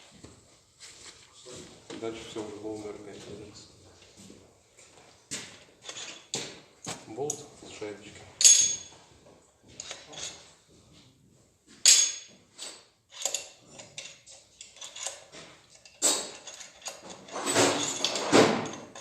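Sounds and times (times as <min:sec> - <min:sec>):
metal tool and bolt clinks: 0:05.8 - 0:06.6, 0:08.4 - 0:09.0, 0:09.7 - 0:10.5, 0:11.8 - 0:19.0.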